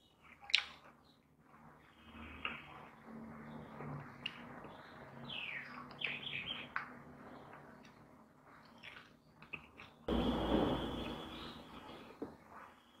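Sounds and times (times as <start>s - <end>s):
bird chirping: 4.2s - 7.5s, 8.7s - 12.2s
loud rushing noise: 10.1s - 11.8s.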